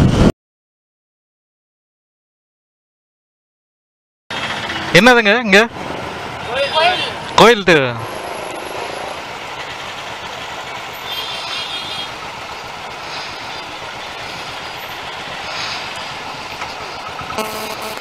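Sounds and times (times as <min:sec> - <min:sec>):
motorcycle engines at low speed: 0:04.3 - 0:18.0
short horn tone: 0:17.3 - 0:18.0.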